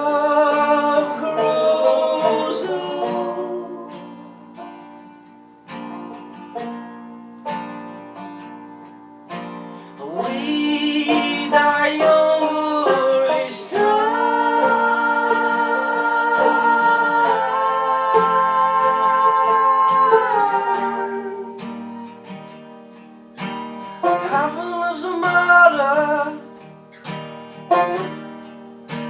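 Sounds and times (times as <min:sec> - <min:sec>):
wordless singing: 0:00.0 - 0:04.2, 0:10.0 - 0:21.8
plucked acoustic guitar: 0:00.0 - 0:29.0.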